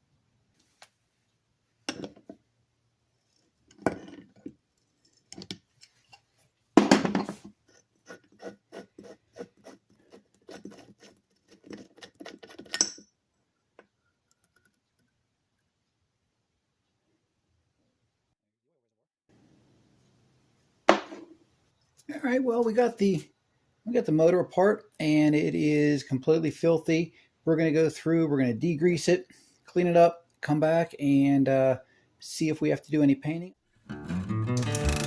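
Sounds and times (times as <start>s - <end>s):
sharp metallic clink: 12.8s - 13.1s.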